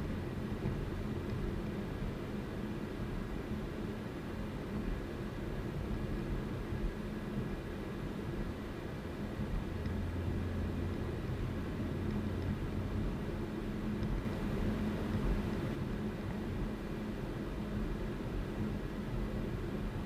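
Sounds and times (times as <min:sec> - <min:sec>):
car engine drone: 0:00.0 - 0:20.0
tyre and road noise: 0:09.2 - 0:17.0.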